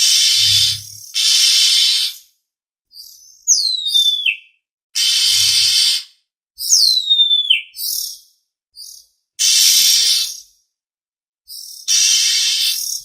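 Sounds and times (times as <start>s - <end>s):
short bird chirps: 0.0s - 2.0s
bird whistled notes: 0.0s - 2.1s
harsh rasping bird call: 0.0s - 2.2s, 11.9s - 13.0s.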